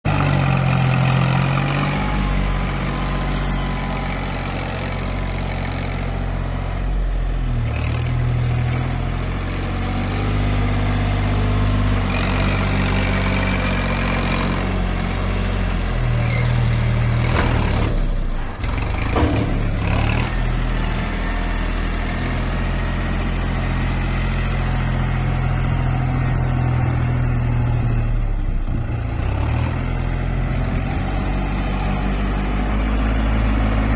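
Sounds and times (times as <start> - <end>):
tractor engine running: 0.0 - 33.9
knocks: 18.9 - 20.1.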